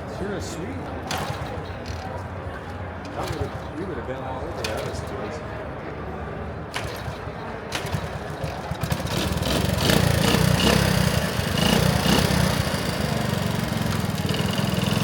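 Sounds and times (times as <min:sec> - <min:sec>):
small motorbike engine running: 0:01.1 - 0:02.2, 0:03.1 - 0:03.7, 0:06.7 - 0:15.0.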